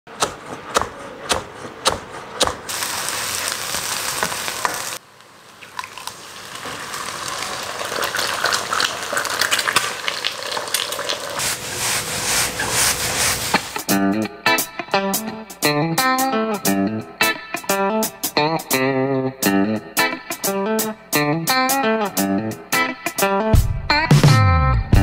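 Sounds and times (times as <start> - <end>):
knife chopping on wooden board: 0.1 - 2.7
hot oil sizzling in a wok: 2.7 - 11.7.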